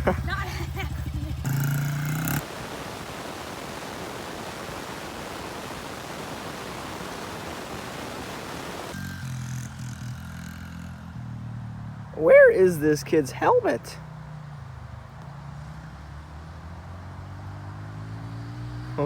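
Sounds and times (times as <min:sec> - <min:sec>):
mini bike engine running: 0:00.0 - 0:02.5, 0:08.9 - 0:11.4
steady hiss: 0:00.0 - 0:10.7.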